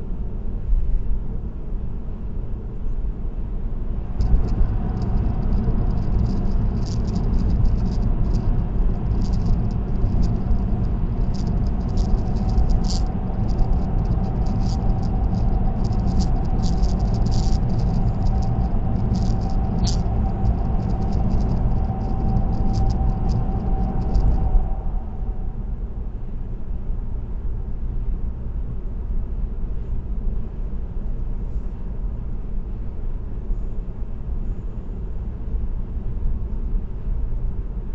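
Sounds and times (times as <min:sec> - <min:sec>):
faint steady whine: 0:00.0 - 0:37.9
tyre and road rumble: 0:04.0 - 0:24.7
high-pitched ticking rattle: 0:04.2 - 0:24.7.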